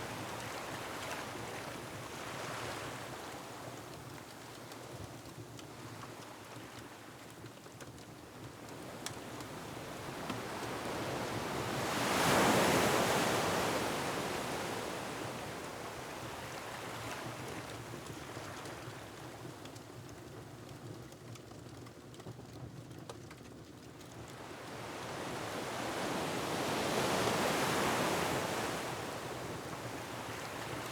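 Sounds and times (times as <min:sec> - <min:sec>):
wood fire crackles: 0:17.9 - 0:24.4.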